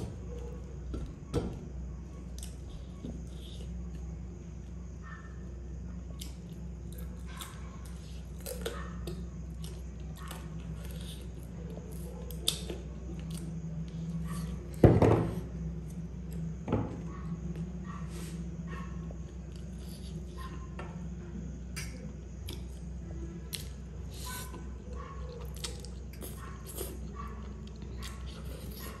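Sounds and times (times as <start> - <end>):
person chewing crunchy food: 6.2 - 14.8, 23.5 - 29.0.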